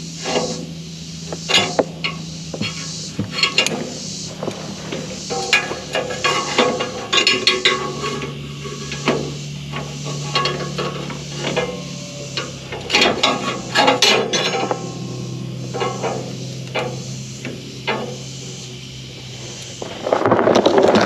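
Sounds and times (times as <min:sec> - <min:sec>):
steady low hum: 0:00.0 - 0:21.0
metal clanks and knocks: 0:01.3 - 0:21.0.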